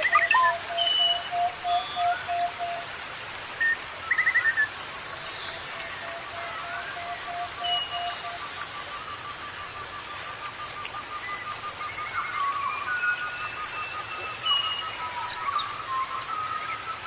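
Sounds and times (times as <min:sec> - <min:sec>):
birds calling: 0:00.0 - 0:17.0
steady hiss of running water: 0:00.0 - 0:17.0.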